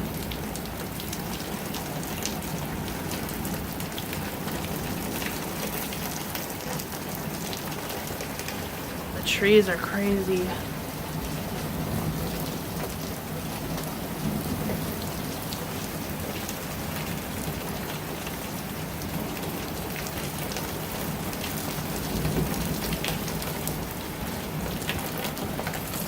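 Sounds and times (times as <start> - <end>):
raindrops ticking: 0.1 - 11.7
heavy rain hissing: 1.9 - 19.9.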